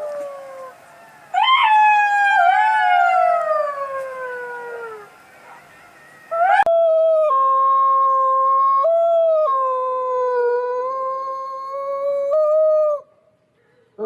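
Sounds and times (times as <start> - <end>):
dog howling: 1.4 - 11.1.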